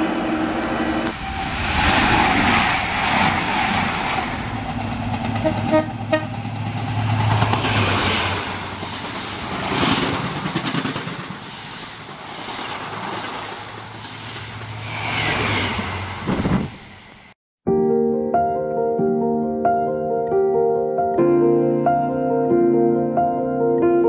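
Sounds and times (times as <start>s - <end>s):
train wheels rushing on rails: 0.0s - 17.4s.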